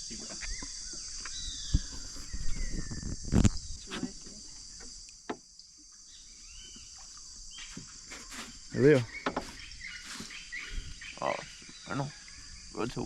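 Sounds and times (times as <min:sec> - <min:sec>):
rainforest insect chorus: 0:00.0 - 0:13.0
short knocks and thumps: 0:07.7 - 0:10.3.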